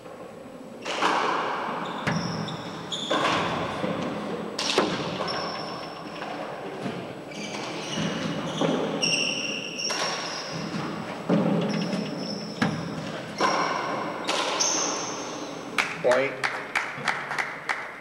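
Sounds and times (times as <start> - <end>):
handball smacking walls: 0.8 - 5.6, 6.2 - 15.2
sneakers squeaking on court: 0.8 - 15.7.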